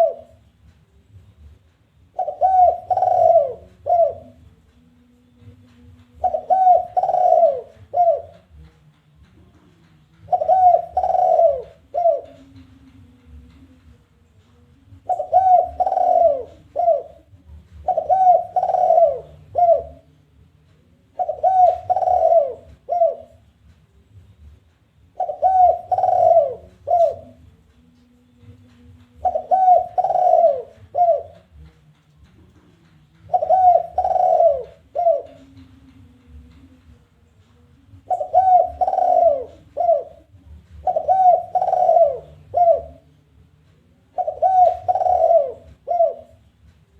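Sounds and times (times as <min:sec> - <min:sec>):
dove cooing: 0:00.0 - 0:00.4, 0:02.1 - 0:04.5, 0:06.1 - 0:08.7, 0:10.2 - 0:13.5, 0:14.9 - 0:20.1, 0:21.1 - 0:23.5, 0:25.1 - 0:27.5, 0:28.4 - 0:31.7, 0:32.3 - 0:36.7, 0:37.9 - 0:43.2, 0:44.1 - 0:46.5.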